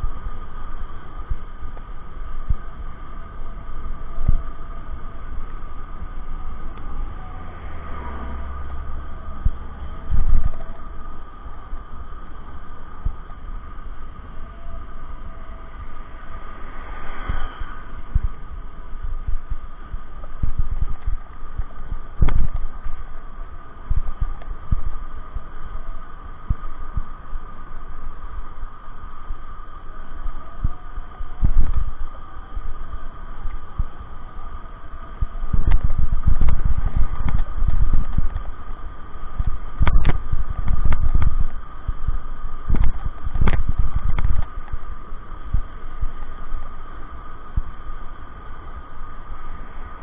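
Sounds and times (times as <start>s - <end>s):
bicycle rolling hum: 0.0s - 50.0s
wind rumbling on microphone: 0.0s - 50.0s.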